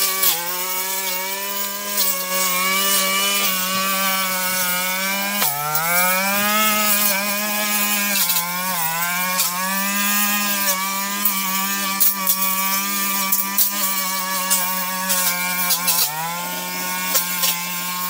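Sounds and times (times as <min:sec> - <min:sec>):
brush cutter engine running: 0:00.0 - 0:18.0.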